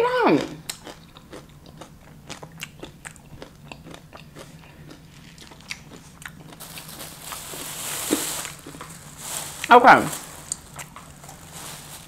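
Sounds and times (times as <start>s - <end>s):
steady low hum: 0.0s - 12.0s
chewing with mouth smacking: 0.4s - 6.9s, 10.5s - 11.3s.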